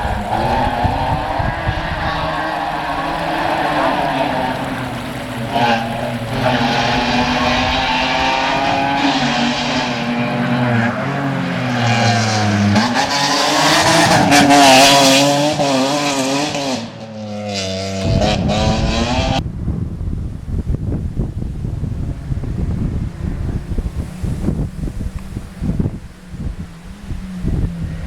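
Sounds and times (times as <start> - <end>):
wind rumble on microphone: 0.0 - 10.7, 18.0 - 28.0
rally car engine accelerating: 0.0 - 19.6, 20.8 - 28.0.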